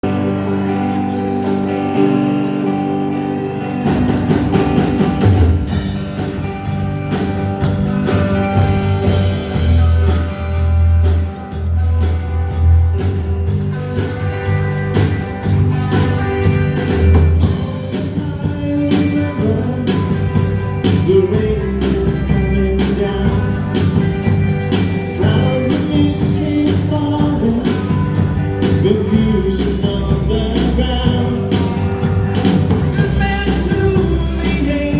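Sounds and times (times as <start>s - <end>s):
bass guitar: 0.0s - 34.9s
drum kit: 0.0s - 34.9s
electric guitars: 0.0s - 34.9s
person singing: 16.8s - 24.4s, 25.0s - 34.9s.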